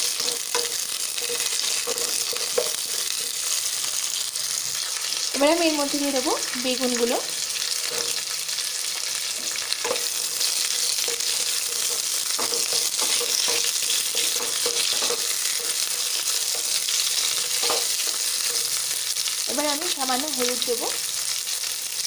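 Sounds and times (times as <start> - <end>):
spatula scraping a pan: 0.0 - 5.3, 7.4 - 19.4
vegetables sizzling in hot oil: 0.0 - 22.0.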